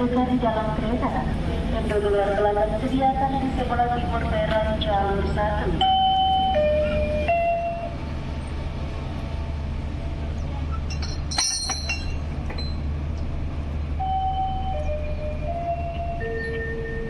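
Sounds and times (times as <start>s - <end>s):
station announcement chime: 0.0s - 8.0s, 14.0s - 17.0s
train rumbling at standstill: 0.0s - 17.0s.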